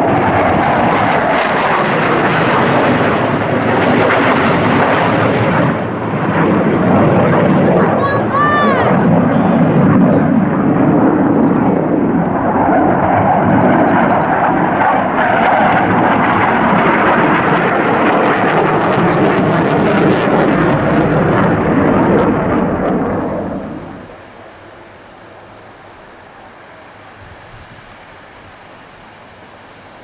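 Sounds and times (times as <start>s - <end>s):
aircraft engine flying past: 0.0s - 30.0s.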